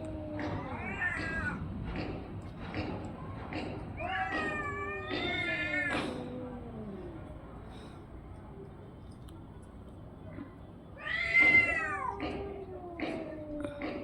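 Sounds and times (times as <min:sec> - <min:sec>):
cat yowling: 0:00.0 - 0:01.6, 0:04.0 - 0:07.4, 0:11.0 - 0:14.0.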